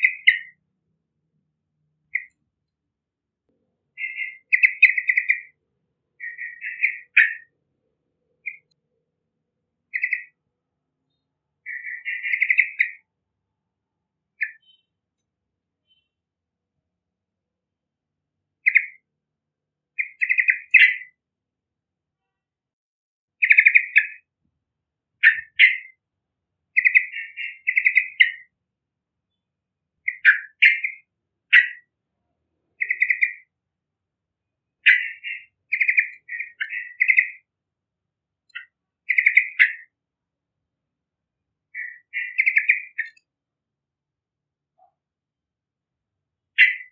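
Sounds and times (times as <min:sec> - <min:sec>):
bulbul singing: 0:00.0 - 0:00.6, 0:02.1 - 0:02.4, 0:03.9 - 0:05.6, 0:06.2 - 0:07.5, 0:08.4 - 0:08.8, 0:09.9 - 0:10.4, 0:11.1 - 0:13.1, 0:14.4 - 0:15.0, 0:15.8 - 0:16.2, 0:18.6 - 0:19.0, 0:20.0 - 0:21.2, 0:23.4 - 0:24.3, 0:25.2 - 0:26.0, 0:26.8 - 0:28.5, 0:30.0 - 0:31.9, 0:32.8 - 0:33.5, 0:34.8 - 0:37.5, 0:38.5 - 0:40.0, 0:41.7 - 0:43.3, 0:46.6 - 0:46.9.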